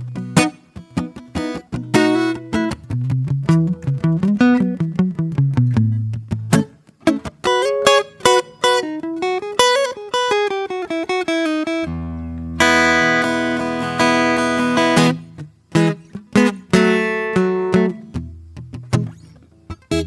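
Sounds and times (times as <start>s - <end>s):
acoustic guitar picked notes: 0.0s - 20.0s
guitar chord ringing: 6.5s - 18.0s.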